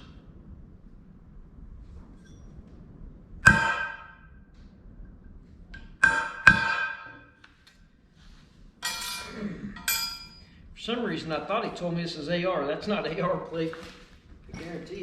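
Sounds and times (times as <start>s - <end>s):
steel plate clanging: 3.4s - 4.2s, 5.8s - 7.4s, 8.8s - 10.5s.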